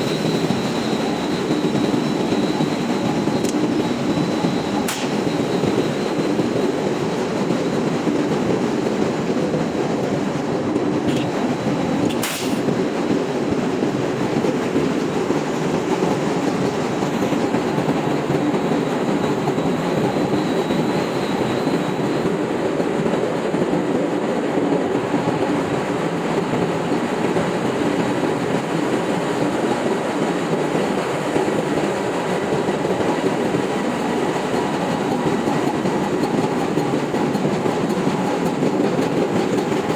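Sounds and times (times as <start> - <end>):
engine room machinery din: 0.0 - 22.2
sharp click: 4.9 - 5.2, 12.1 - 12.7.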